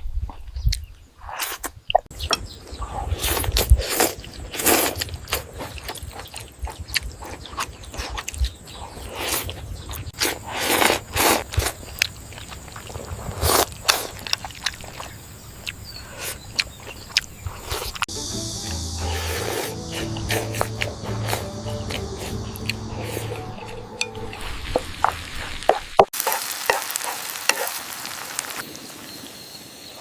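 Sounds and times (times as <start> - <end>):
chewing and biting food: 2.9 - 18.0
background music: 18.1 - 25.3.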